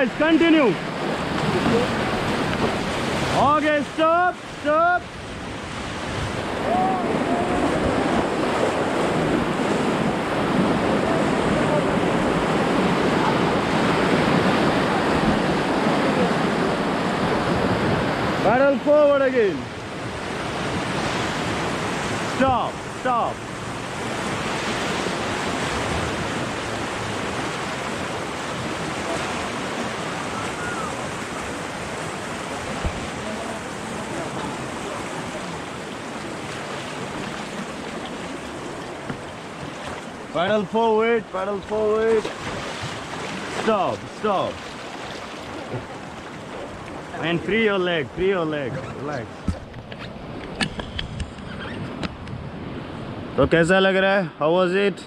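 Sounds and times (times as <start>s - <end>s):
river rapid rushing: 0.0s - 54.1s
faint voice calling: 6.6s - 7.8s, 30.3s - 31.1s.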